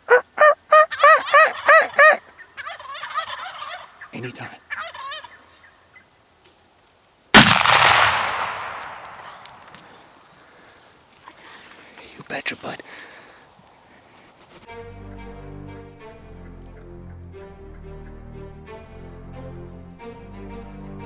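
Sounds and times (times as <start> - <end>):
turkeys gobbling: 0.0 - 6.0
shotgun blast echoing: 7.3 - 10.2.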